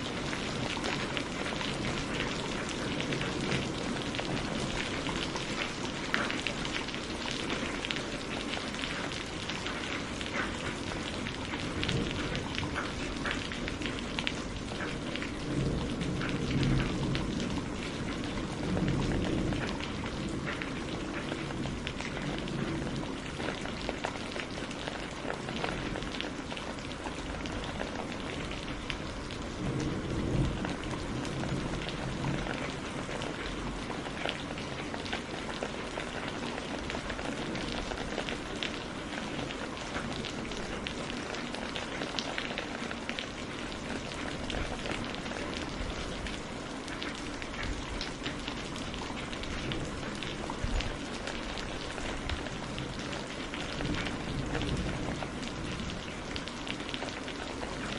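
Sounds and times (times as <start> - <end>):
heavy rain pattering: 0.0 - 57.9
low rumble of thunder: 0.1 - 57.9.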